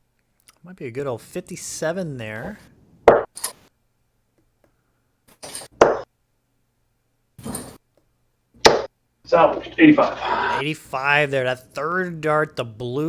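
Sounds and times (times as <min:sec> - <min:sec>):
darts thudding into dartboard: 0:05.4 - 0:06.1, 0:08.6 - 0:08.9.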